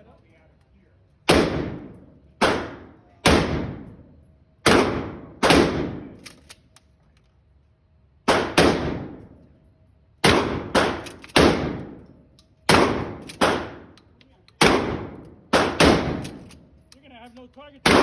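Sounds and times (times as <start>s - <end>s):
shotgun shots: 1.3s - 4.0s, 4.6s - 6.3s, 8.3s - 9.4s, 10.2s - 12.1s, 12.7s - 14.0s, 14.6s - 16.6s.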